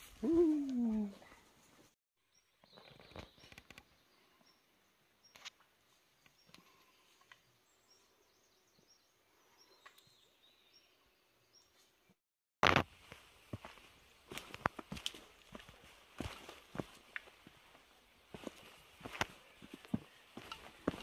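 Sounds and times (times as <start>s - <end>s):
forest ambience: 0.0s - 21.0s
small bird chirping: 2.3s - 5.5s.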